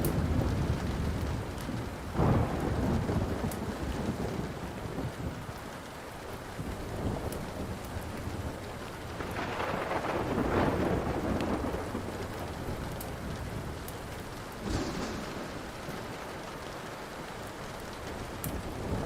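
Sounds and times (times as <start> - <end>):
thunder rumbling: 0.0 - 5.6, 6.6 - 19.0
steady rain: 0.0 - 19.0
wood fire crackling: 0.0 - 19.0.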